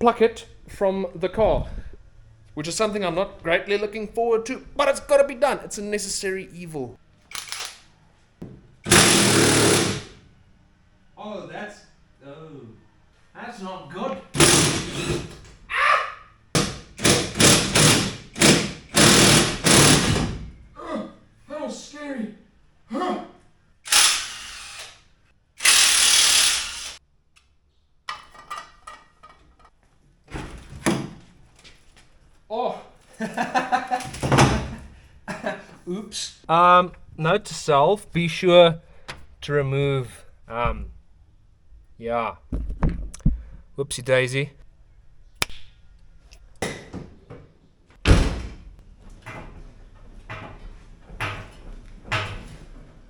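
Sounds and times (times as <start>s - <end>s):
loud even burst of tool noise: 8.9s - 10.2s, 14.4s - 15.3s, 16.6s - 20.4s, 23.9s - 25.0s, 25.6s - 27.0s.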